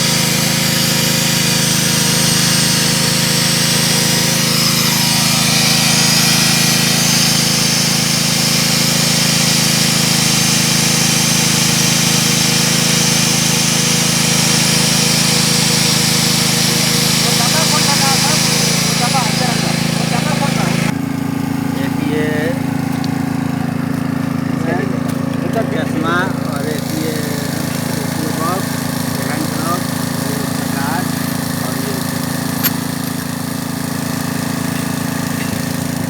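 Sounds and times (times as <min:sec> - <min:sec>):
drilling machine motor running: 0:00.0 - 0:36.0.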